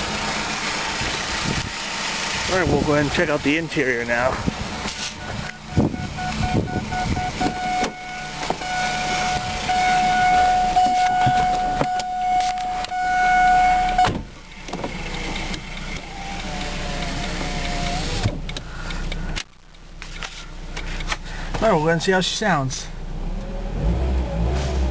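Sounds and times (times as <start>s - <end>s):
power window motor whine: 5.2s - 18.4s.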